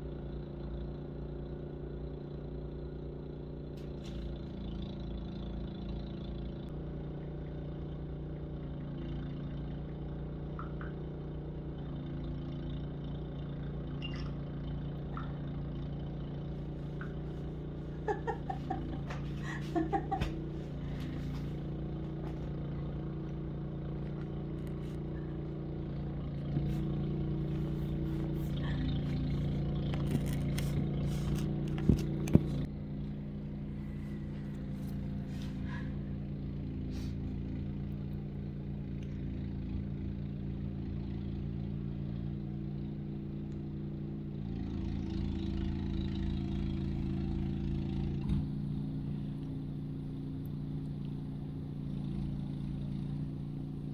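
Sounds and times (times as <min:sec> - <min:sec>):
motor humming: 0:13.6 - 0:38.4.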